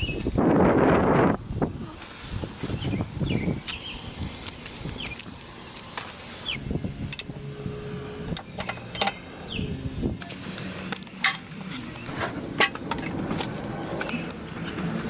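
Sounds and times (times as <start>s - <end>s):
hand tools clinking on metal: 10.2s - 13.4s.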